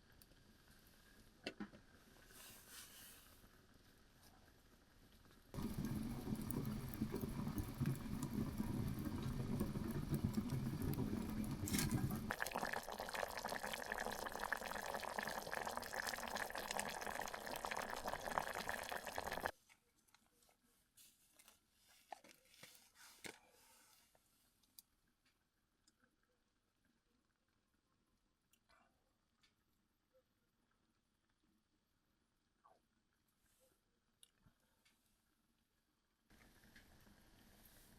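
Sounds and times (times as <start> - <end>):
liquid pouring into container: 5.6 - 19.5.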